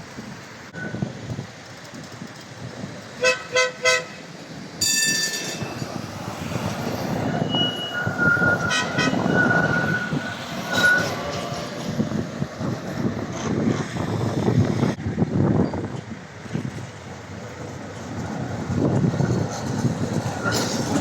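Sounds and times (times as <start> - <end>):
tram rumbling on rails: 0.0 - 21.0
tram warning horn toots: 3.2 - 12.6, 18.2 - 21.0.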